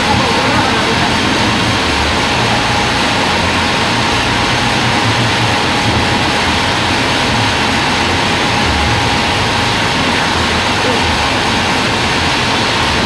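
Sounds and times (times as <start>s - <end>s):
faint steady whine: 0.0s - 13.0s
sawmill running: 0.0s - 13.0s.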